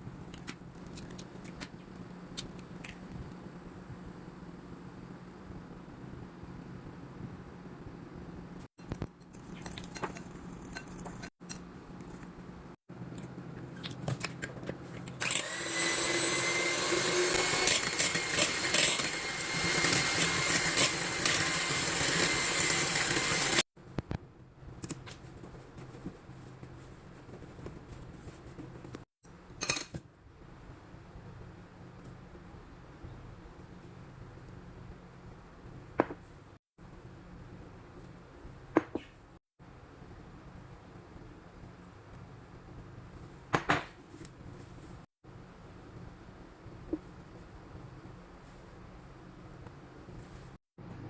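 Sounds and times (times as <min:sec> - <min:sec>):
electric mixer running: 0:15.2 - 0:23.6.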